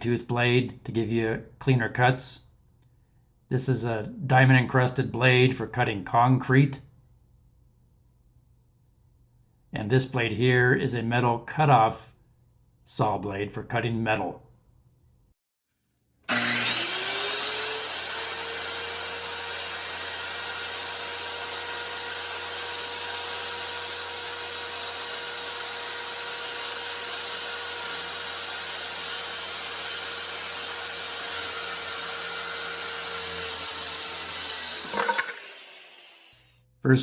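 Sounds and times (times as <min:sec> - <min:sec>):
circular saw whining: 0:16.3 - 0:36.4.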